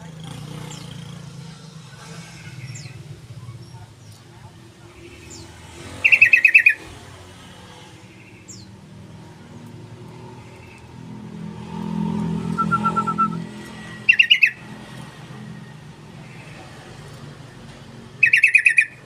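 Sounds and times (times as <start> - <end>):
bird chattering call: 6.0 - 6.9, 14.0 - 14.6, 18.2 - 19.0.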